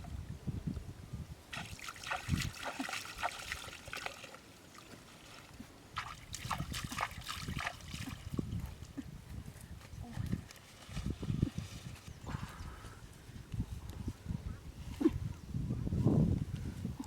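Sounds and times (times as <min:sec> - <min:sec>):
water splashing and trickling: 0:01.5 - 0:09.2, 0:10.1 - 0:12.8.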